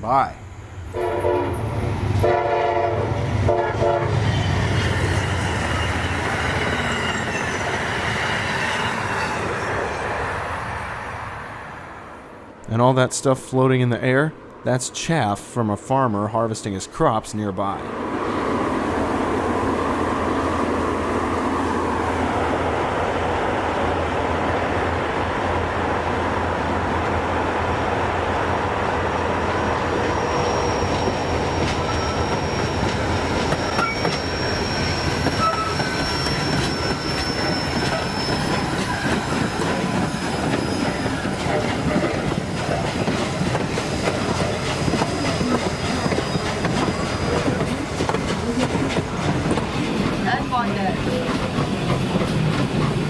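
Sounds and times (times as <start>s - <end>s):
high wheel squeal: 4.3s - 10.1s, 29.9s - 42.9s, 43.8s - 48.6s
train wheels clicking on rails: 27.0s - 53.0s.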